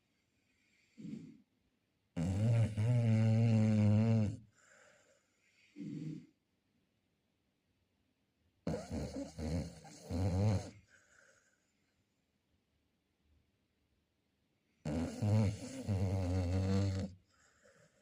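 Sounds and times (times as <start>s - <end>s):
dog snoring: 0.6s - 1.4s, 2.2s - 6.4s, 8.6s - 11.4s, 14.8s - 18.0s
dog snorting: 0.9s - 1.4s, 2.2s - 4.4s, 5.8s - 6.3s, 8.7s - 10.8s, 14.9s - 17.1s.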